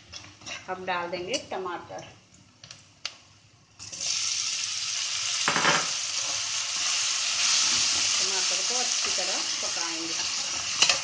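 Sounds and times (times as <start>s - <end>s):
food sizzling in hot oil: 3.8s - 11.0s.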